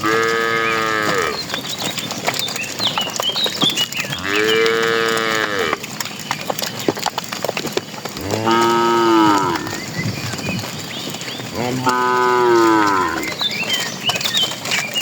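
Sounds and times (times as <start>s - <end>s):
cattle mooing: 0.0s - 1.4s, 4.1s - 5.9s, 8.2s - 9.9s, 11.5s - 13.4s.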